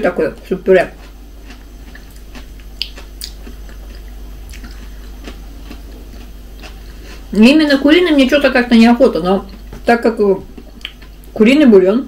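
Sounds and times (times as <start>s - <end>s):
faint low hum: 0.0s - 12.0s
person chewing rice: 0.9s - 7.4s, 9.4s - 11.4s
mouth clicks: 1.9s - 4.8s.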